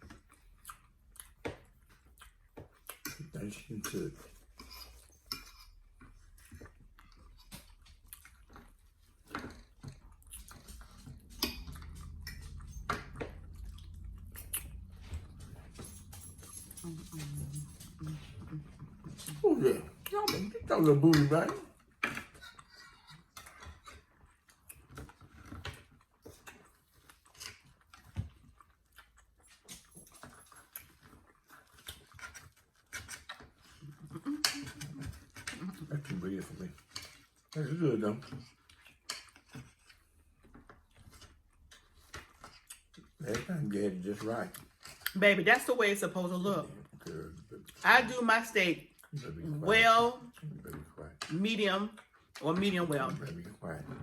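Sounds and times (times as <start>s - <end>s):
dog making small noises: 0.0s - 45.2s
chewing steak: 0.0s - 45.3s, 46.2s - 54.0s.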